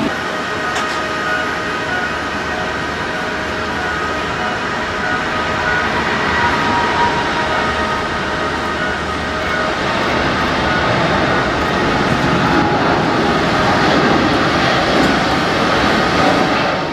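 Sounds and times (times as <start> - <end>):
faint steady whining tones: 0.0 - 16.0
airliner cabin rumble and hiss: 9.1 - 16.9.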